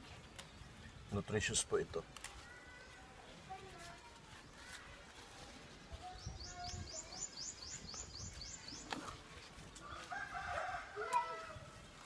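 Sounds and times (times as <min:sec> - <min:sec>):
bird chirping: 0:06.0 - 0:09.9.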